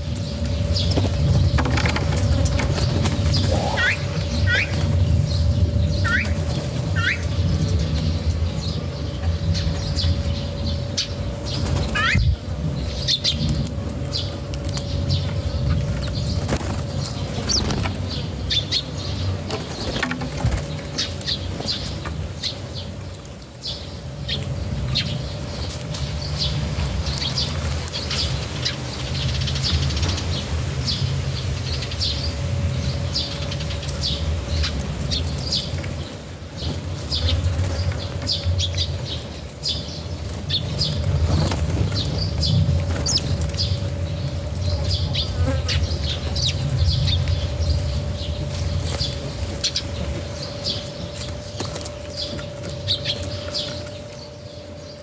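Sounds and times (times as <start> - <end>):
steady low rumble: 0.0 - 23.0, 23.7 - 54.9
small birds chirping: 0.0 - 55.0
wings fluttering: 0.1 - 8.5, 9.6 - 22.8, 33.0 - 54.4
wings flapping: 0.4 - 7.9, 11.4 - 12.6, 13.4 - 18.6.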